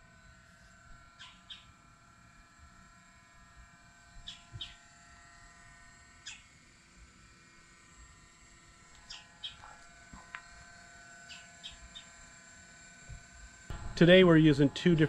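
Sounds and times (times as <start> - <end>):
steady faint hum: 0.0 - 15.0
faint birds chirping: 1.2 - 1.8, 4.2 - 4.9, 9.0 - 10.6, 11.2 - 12.2.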